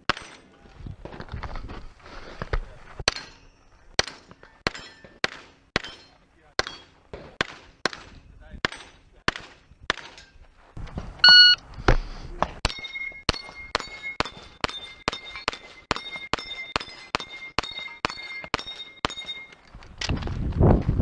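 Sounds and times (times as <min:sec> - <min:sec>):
short ringing tone: 0:11.2 - 0:11.6
shot timer beep: 0:11.2 - 0:11.6.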